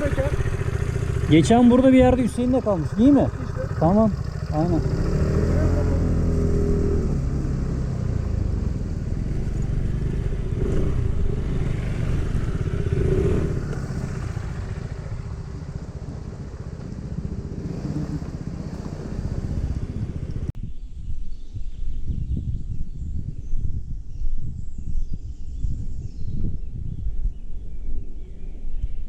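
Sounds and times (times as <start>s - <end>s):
motorcycle engine running: 0.0s - 20.6s.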